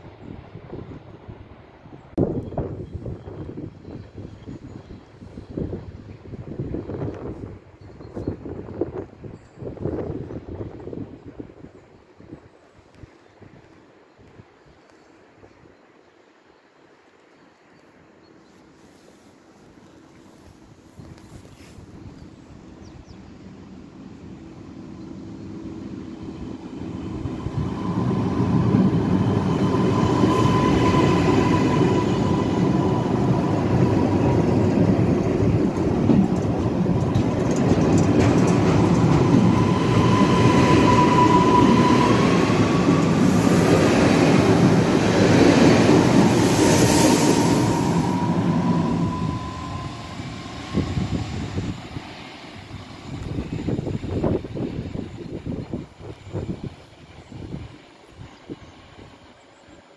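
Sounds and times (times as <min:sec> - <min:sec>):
train rumble and rail noise: 0:00.0 - 0:59.9
high wavering train whine: 0:20.2 - 0:59.9.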